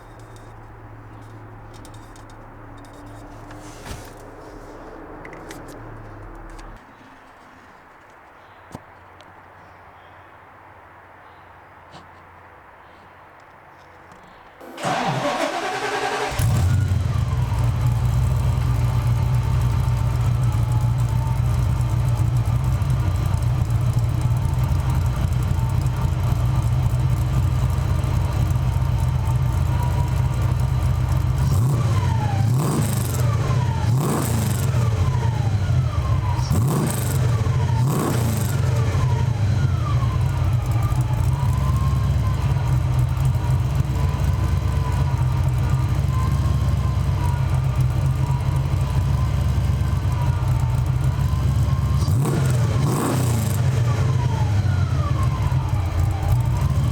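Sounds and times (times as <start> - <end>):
engine throttle blips: 0.0 - 7.6, 14.6 - 56.9
car engine idling: 0.0 - 7.8, 14.6 - 56.9.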